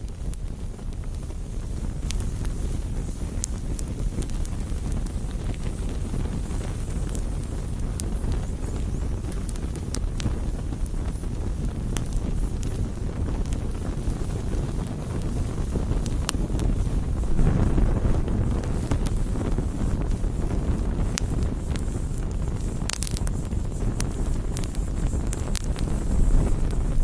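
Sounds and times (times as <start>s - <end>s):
campfire crackling and popping: 0.0s - 27.0s
wind rumble on microphone: 0.0s - 27.0s.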